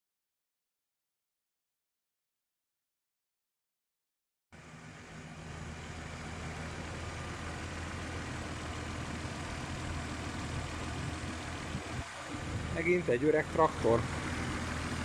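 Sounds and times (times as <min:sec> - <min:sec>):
car engine idling: 0:04.6 - 0:15.0.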